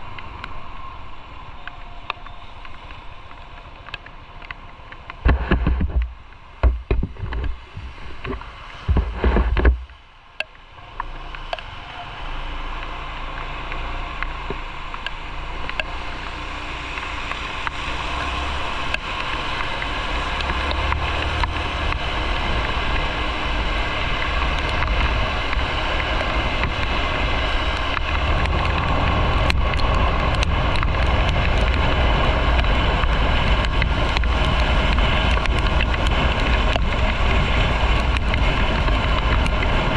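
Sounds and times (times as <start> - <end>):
road noise: 0.0 - 39.9
wind buffeting microphone: 5.1 - 10.0, 17.3 - 39.9.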